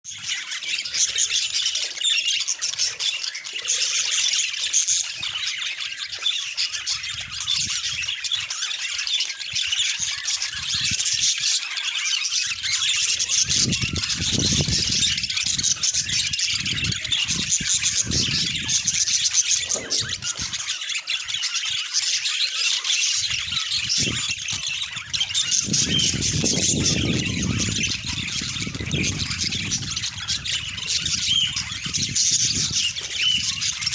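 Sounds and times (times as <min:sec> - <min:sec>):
budgerigars chattering: 0:00.1 - 0:33.9.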